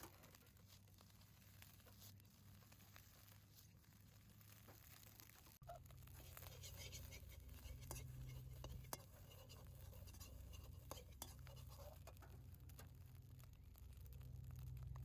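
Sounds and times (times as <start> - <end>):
faint crackles and ticks: 0.0 - 15.0
low hum: 5.6 - 15.0.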